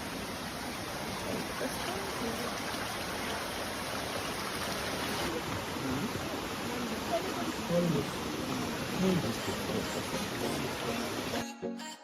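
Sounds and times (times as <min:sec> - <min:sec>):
forest stream running: 0:00.0 - 0:11.5.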